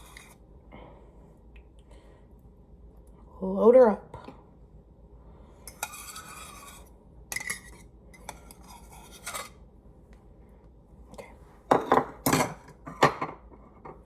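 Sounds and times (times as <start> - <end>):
knife scraping across toast: 5.7 - 9.6.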